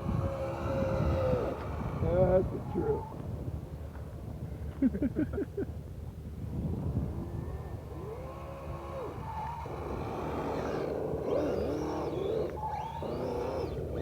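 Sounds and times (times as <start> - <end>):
rc car motor whining: 0.0 - 3.3, 6.8 - 14.0.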